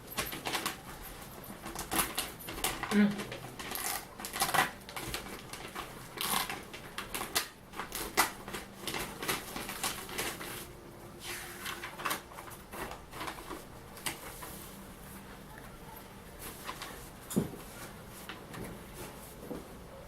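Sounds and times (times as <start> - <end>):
packaging clicks taps and rustling: 0.1 - 10.7, 11.7 - 14.4.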